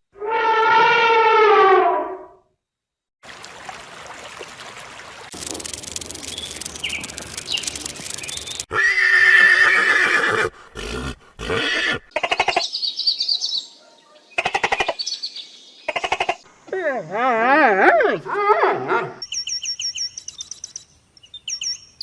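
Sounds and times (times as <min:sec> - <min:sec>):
rough rustling: 0:05.2 - 0:08.7
horse neighing: 0:08.7 - 0:12.1.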